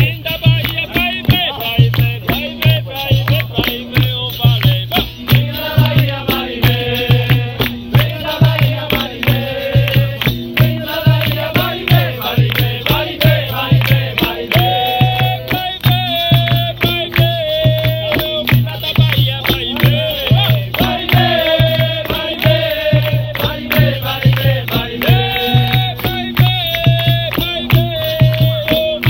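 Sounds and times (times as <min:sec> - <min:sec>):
hand drum beating: 0:00.0 - 0:29.0
rattles and percussion clicks: 0:00.0 - 0:29.0
person singing: 0:10.8 - 0:18.6.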